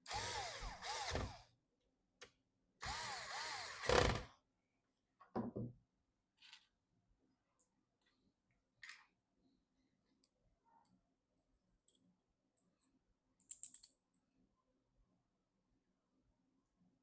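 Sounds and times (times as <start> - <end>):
clicks of small parts handled: 8.8 - 9.1, 12.6 - 14.2.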